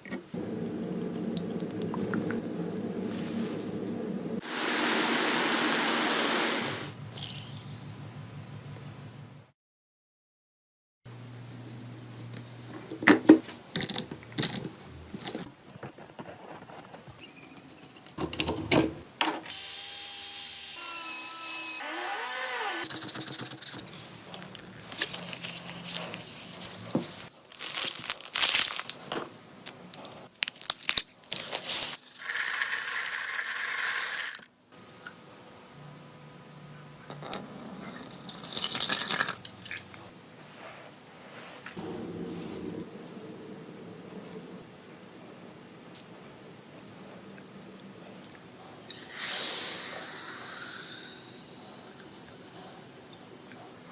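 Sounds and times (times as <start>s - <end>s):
steady hiss: 0.4s - 7.0s.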